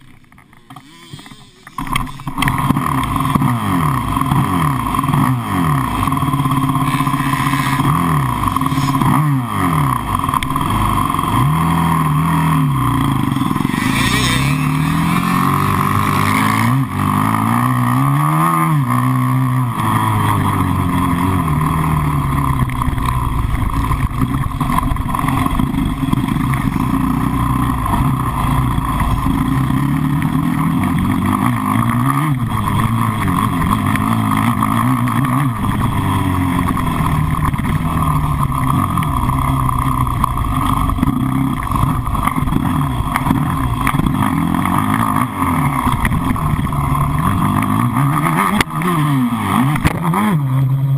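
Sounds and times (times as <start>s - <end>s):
engine revving: 0.6s - 50.9s.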